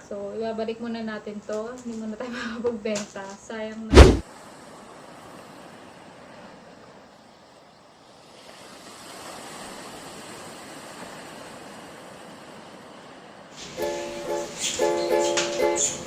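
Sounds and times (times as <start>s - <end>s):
steady background hiss: 13.6s - 16.0s.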